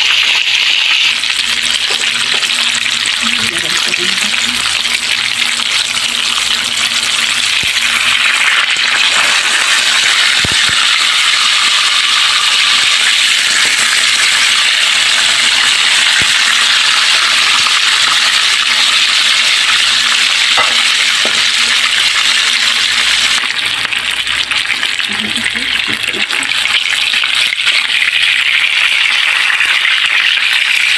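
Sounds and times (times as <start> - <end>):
fish sizzling in hot oil: 0.0 - 30.9
oil popping: 7.3 - 12.0.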